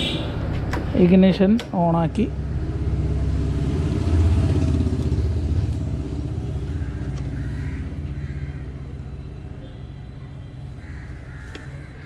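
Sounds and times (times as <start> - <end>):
motorcycle engine running: 2.3 - 10.0.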